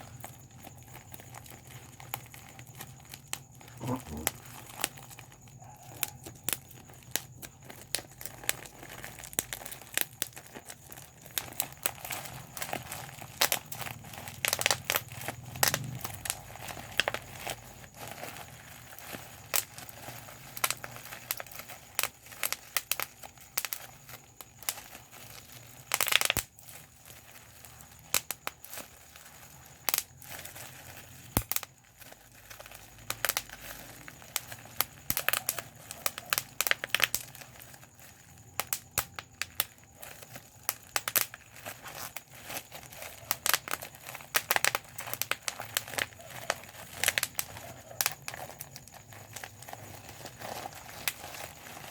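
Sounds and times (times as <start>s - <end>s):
bubble wrap popping: 0.0s - 51.9s
plastic sheet crinkling: 0.0s - 51.9s.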